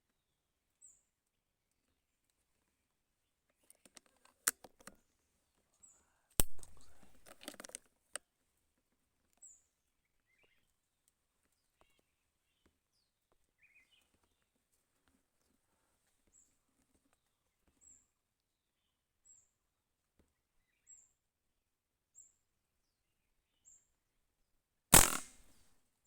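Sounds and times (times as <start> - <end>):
sharp crack: 6.4 - 7.4, 24.9 - 25.6
light clicks: 25.0 - 25.5.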